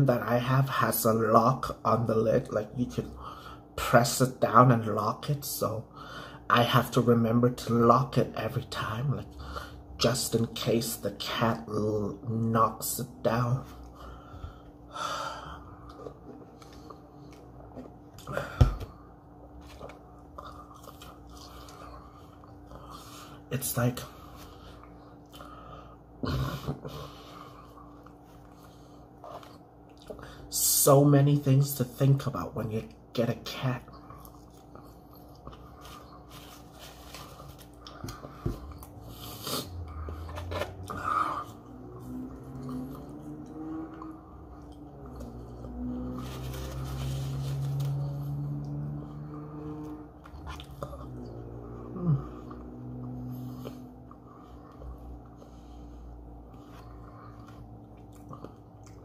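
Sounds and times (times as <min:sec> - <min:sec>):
faint steady hum: 0:00.0 - 0:59.0
person chewing fries: 0:19.3 - 0:23.2, 0:27.5 - 0:30.4, 0:33.9 - 0:51.7, 0:56.3 - 0:59.0.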